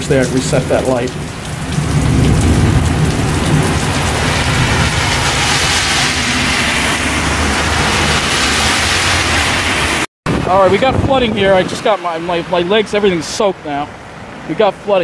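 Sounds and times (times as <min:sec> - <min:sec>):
heavy rain on pavement: 0:00.0 - 0:15.0
car tyres hissing through water: 0:00.4 - 0:10.1.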